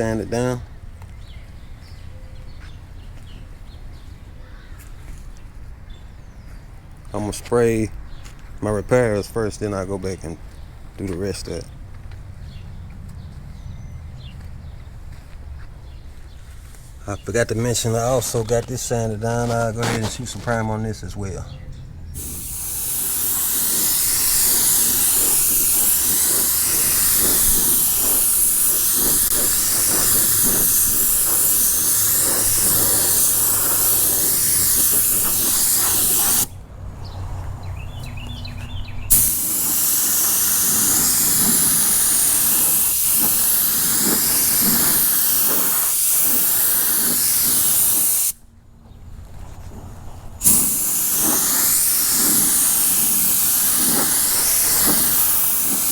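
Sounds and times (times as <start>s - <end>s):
spray gun hissing: 17.3s - 21.1s, 22.2s - 36.6s, 39.1s - 48.4s, 50.4s - 55.9s.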